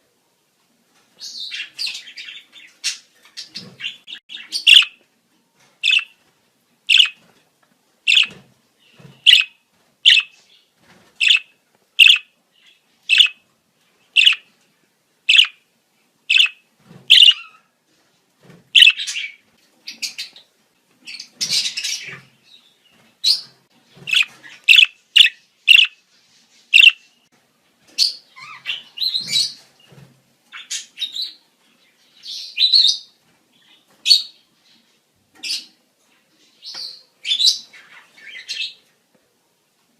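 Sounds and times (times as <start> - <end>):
budgerigars chirping and warbling: 1.2 - 5.0, 5.8 - 6.2, 6.9 - 7.2, 8.1 - 10.4, 11.2 - 13.4, 14.1 - 14.5, 15.3 - 15.6, 16.3 - 17.7, 18.8 - 20.4, 23.2 - 26.0, 26.8 - 27.1, 28.0 - 29.6.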